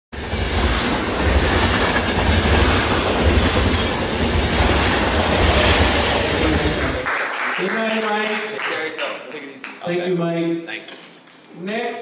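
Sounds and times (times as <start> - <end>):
train running on rails: 0.1 - 7.1.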